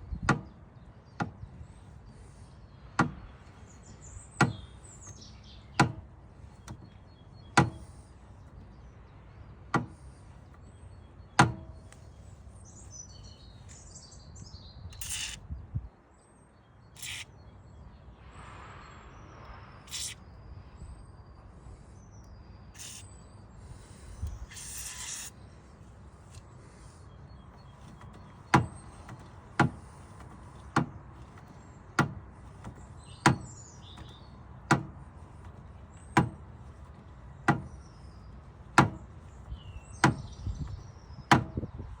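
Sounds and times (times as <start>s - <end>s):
birds chirping faintly: 0.0s - 42.0s
sharp knocks: 3.0s - 3.3s, 5.8s - 6.9s, 7.6s - 7.9s, 11.4s - 11.8s, 27.6s - 37.9s, 38.8s - 39.2s, 40.0s - 41.7s.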